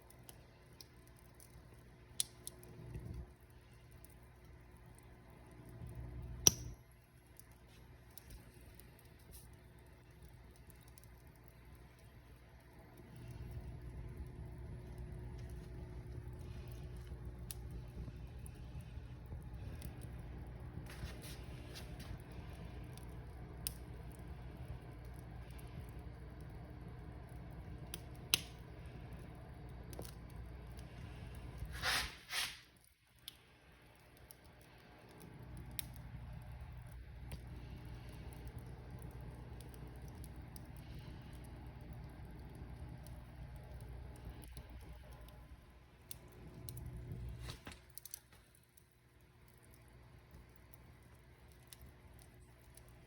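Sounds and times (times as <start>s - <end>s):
fire low rumble: 0.0s - 53.0s
wood fire crackling: 0.0s - 53.0s
sharp pop of burning wood: 6.4s - 6.8s
short hissing bursts: 31.7s - 32.7s.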